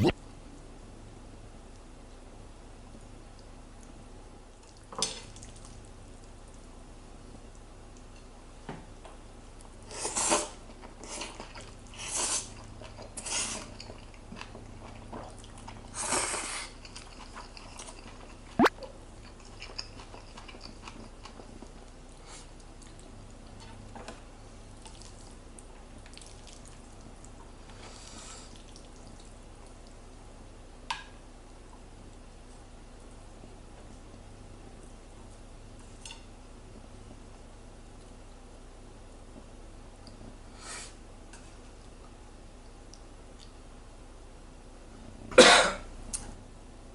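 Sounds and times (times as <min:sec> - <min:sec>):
wet squishy noodles: 0:04.4 - 0:06.7, 0:09.6 - 0:30.2.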